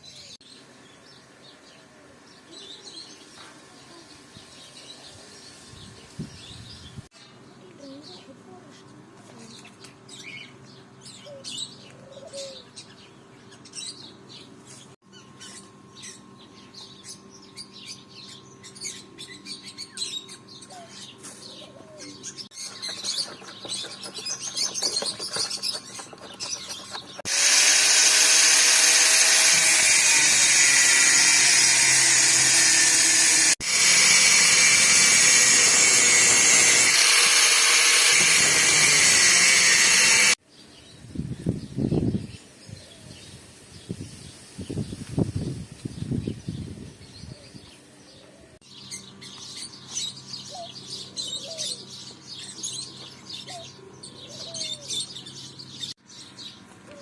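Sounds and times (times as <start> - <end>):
small birds chirping: 0.0 - 28.2, 32.6 - 57.0
loud power tool running: 26.2 - 40.4.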